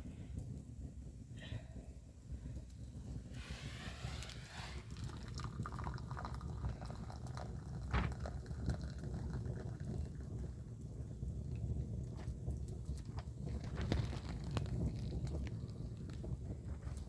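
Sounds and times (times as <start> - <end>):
water pouring: 3.3 - 10.7, 13.0 - 17.0
small clicks and drips: 4.9 - 17.0.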